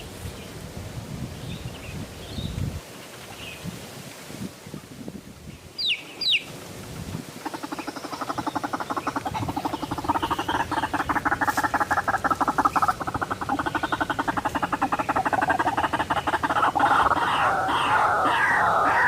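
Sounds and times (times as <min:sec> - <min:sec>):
waterhen calling: 0:07.3 - 0:19.0.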